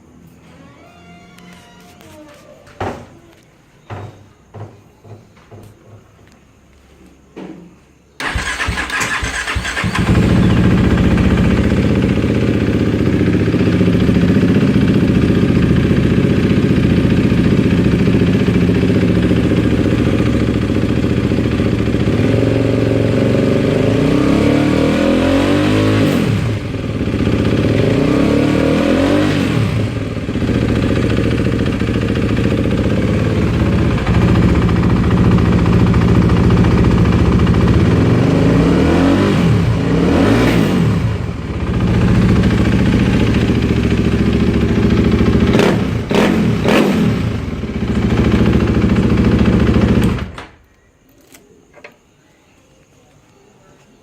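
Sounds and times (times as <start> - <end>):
motorcycle engine starter: 8.2 - 13.9, 47.1 - 52.0
motorcycle engine idling and revving: 8.2 - 50.4.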